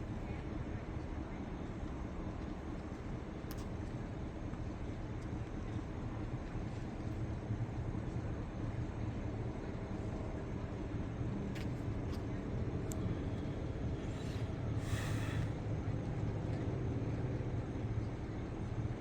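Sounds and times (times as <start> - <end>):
short hiss: 14.8 - 15.5.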